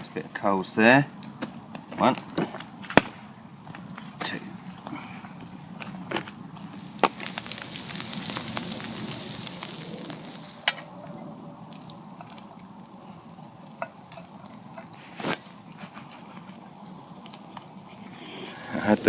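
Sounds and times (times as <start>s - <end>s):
steak sizzling on coals: 5.4s - 19.0s.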